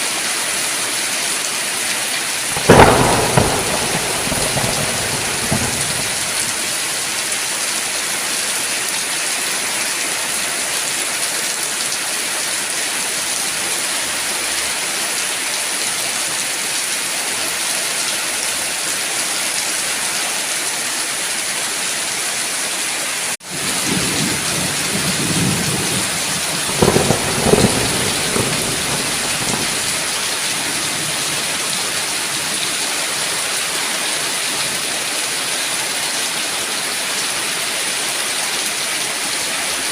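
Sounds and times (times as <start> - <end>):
heavy rain hissing: 1.7 - 10.0, 23.4 - 39.9
low thunder rumbling: 2.5 - 7.2, 23.5 - 32.5.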